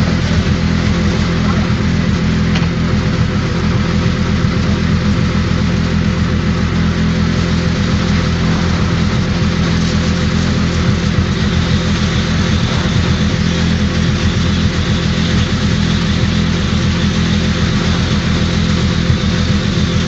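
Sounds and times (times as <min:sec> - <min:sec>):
pressure washer engine running: 0:00.0 - 0:20.0
high-pressure water spray hiss: 0:06.4 - 0:20.0.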